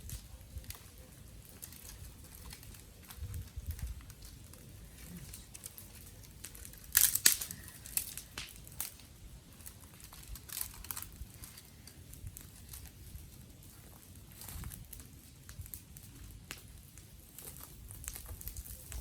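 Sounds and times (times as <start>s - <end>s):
dry twigs snapping: 0.0s - 13.2s, 17.4s - 19.0s.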